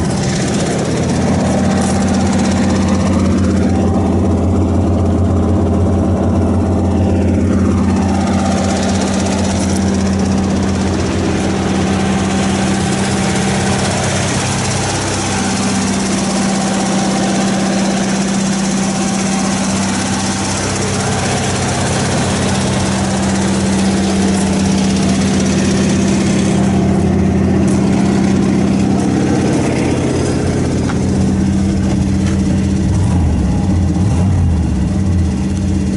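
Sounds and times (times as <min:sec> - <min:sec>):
truck engine idling: 0:00.0 - 0:35.9.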